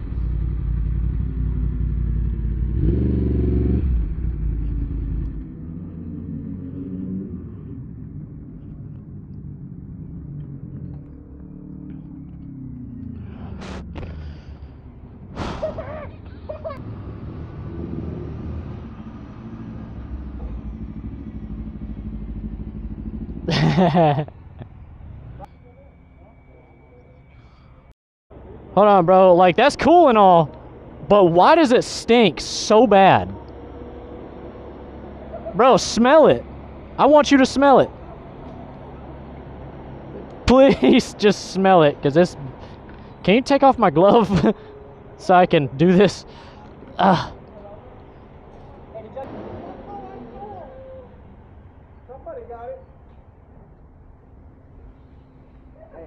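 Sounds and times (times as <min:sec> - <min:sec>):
motorcycle engine idling: 0:00.0 - 0:06.2, 0:07.7 - 0:15.3, 0:19.3 - 0:26.3
motorcycle engine rumbling: 0:00.0 - 0:56.0.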